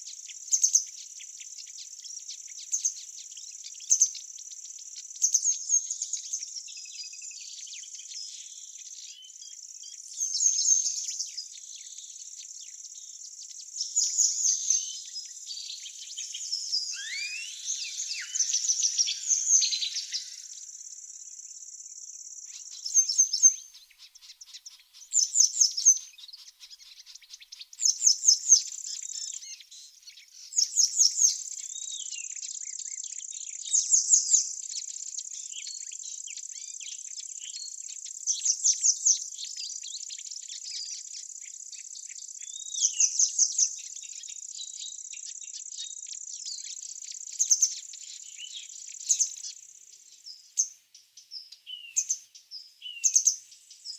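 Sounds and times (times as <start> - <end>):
birds singing trilled phrases: 0.0 - 53.9
high-pitched insect trill: 16.0 - 23.6.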